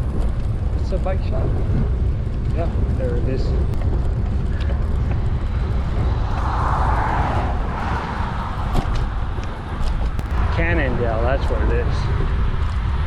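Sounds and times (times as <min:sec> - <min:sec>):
wind rumbling on microphone: 0:00.0 - 0:13.0
passing vehicle tyre noise: 0:03.7 - 0:11.4.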